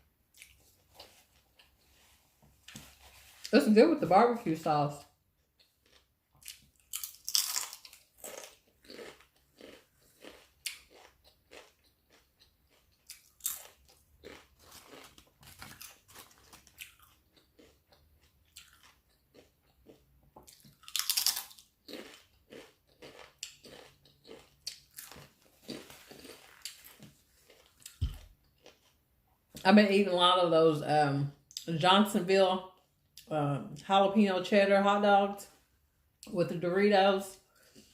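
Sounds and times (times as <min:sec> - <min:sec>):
person chewing sandwich: 0:00.2 - 0:03.5, 0:05.3 - 0:29.2.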